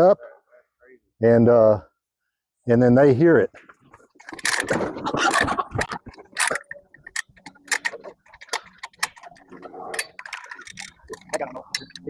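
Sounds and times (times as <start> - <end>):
trap mechanism scraping rattle: 4.2 - 12.0
sharp metal clicks: 5.4 - 12.0.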